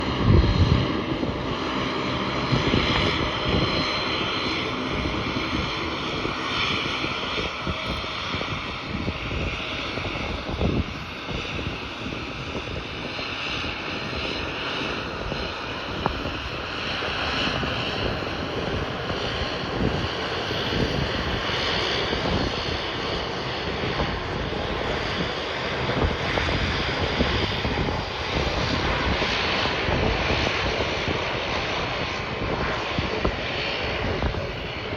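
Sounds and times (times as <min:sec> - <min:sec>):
jet engine whine: 0:00.0 - 0:34.9
jet engines loud rumble: 0:00.0 - 0:34.9.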